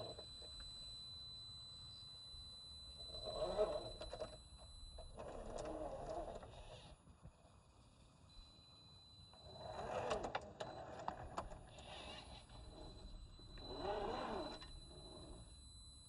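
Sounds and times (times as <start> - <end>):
electric motor and gears whining: 2.5 - 6.8, 9.2 - 16.0.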